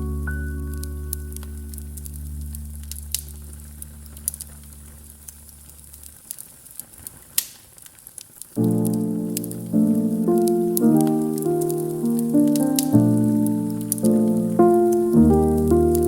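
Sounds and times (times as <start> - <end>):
jazz chord ringing: 0.0 - 5.1
music: 0.0 - 5.4, 8.6 - 16.0
wood fire crackling and popping: 4.2 - 15.3.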